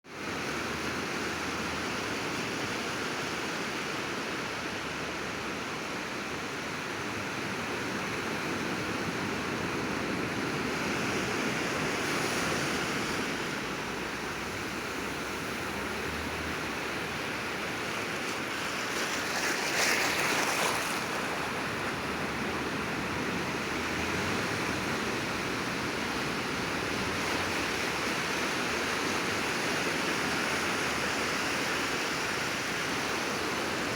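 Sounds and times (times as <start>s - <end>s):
sea waves washing onto shore: 0.2s - 33.9s
wave breaking: 11.0s - 29.5s.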